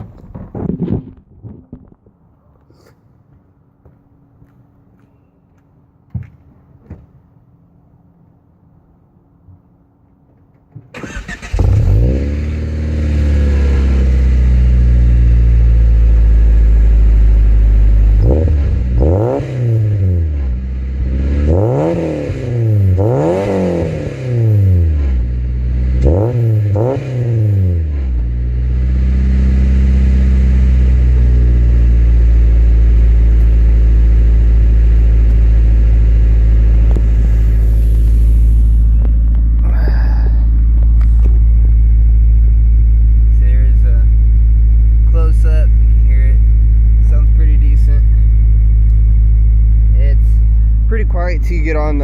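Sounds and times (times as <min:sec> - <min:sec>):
car engine starting and idling: 0:09.8 - 0:52.0
engine revving: 0:11.0 - 0:52.0.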